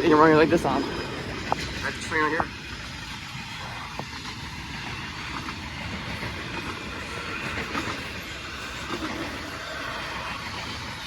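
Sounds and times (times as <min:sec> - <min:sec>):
freight train wheels rumbling on rails: 0:00.0 - 0:11.0.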